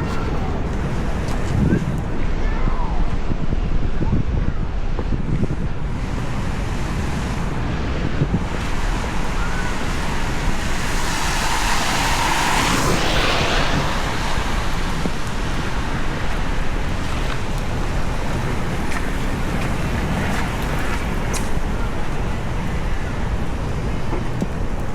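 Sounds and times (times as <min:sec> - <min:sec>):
rain on a city street: 0:00.0 - 0:04.0, 0:04.6 - 0:24.9
traffic rumble: 0:00.0 - 0:24.9
vehicle tyres hissing on wet road: 0:05.9 - 0:24.9.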